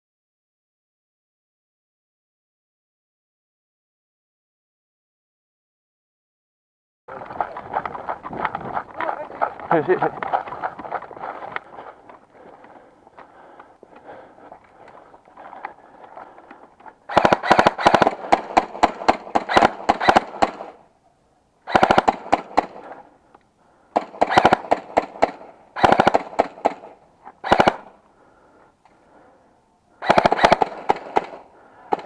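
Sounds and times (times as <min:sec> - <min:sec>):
airsoft guns firing bursts: 0:17.1 - 0:20.8, 0:21.7 - 0:22.9, 0:23.9 - 0:28.0, 0:30.0 - 0:32.0.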